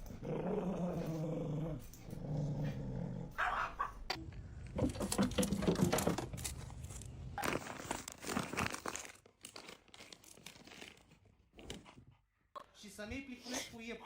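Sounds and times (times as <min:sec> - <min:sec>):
crinkling and crackling: 0:04.1 - 0:12.1.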